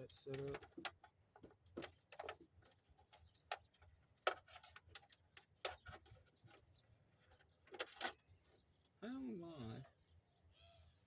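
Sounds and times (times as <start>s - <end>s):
light clicks and taps: 0.0s - 2.4s.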